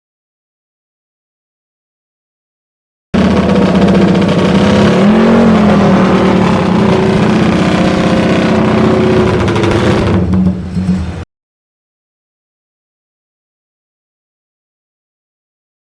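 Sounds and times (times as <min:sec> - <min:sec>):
motorcycle engine running: 0:03.2 - 0:11.2.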